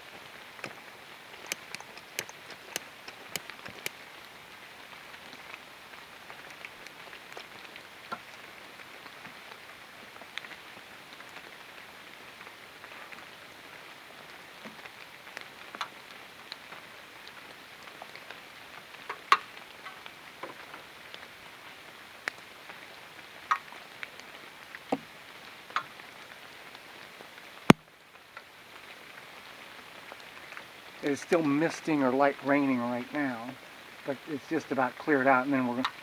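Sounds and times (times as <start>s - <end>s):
light rain hiss: 0.0s - 36.0s
drops tapping from leaves: 1.5s - 4.0s.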